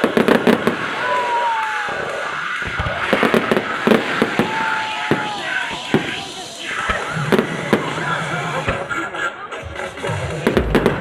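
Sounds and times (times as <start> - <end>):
firework whistle: 0.0 - 8.8
fireworks bangs and crackles: 0.0 - 11.0.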